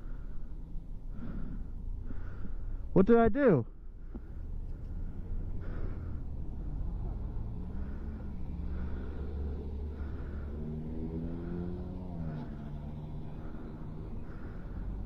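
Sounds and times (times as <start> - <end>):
road noise rumble: 0.0 - 15.0
vehicle engine running: 0.0 - 15.0
vehicle passing: 3.8 - 15.0.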